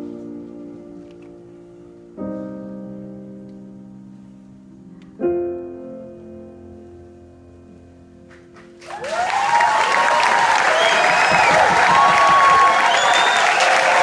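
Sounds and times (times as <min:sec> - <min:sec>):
piano chords ringing: 0:00.0 - 0:09.5.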